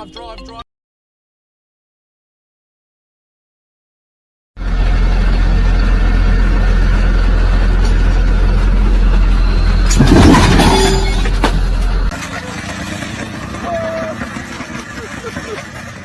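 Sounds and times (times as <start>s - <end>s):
car engine droning: 4.6s - 16.0s
road noise: 4.6s - 16.0s.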